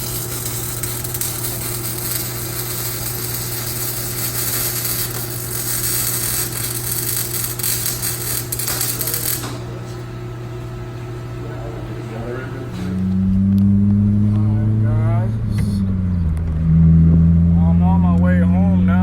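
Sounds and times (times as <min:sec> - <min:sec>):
low hum: 0:12.9 - 0:19.0.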